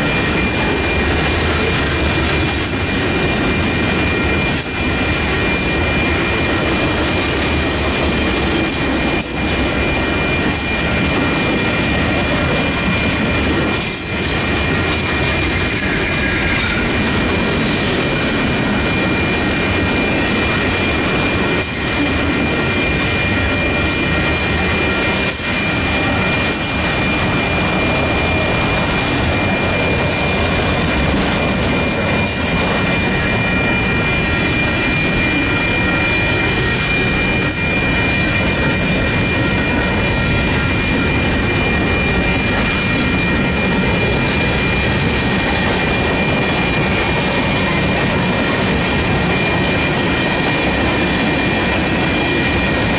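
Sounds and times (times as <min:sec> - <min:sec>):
train wheels clattering over rails: 0:00.0 - 0:52.9.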